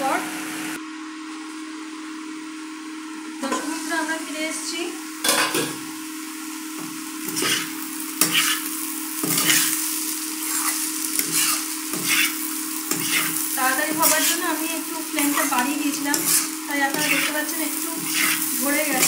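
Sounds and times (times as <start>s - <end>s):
potatoes sizzling in a pan: 3.4s - 19.0s
spatula scraping a pan: 7.2s - 19.0s.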